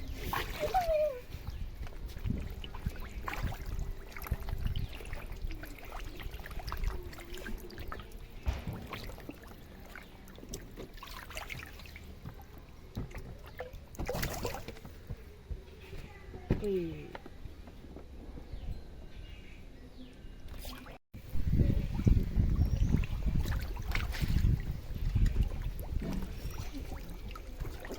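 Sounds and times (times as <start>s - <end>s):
water splashing in fish tank: 2.0s - 14.9s, 21.8s - 27.9s.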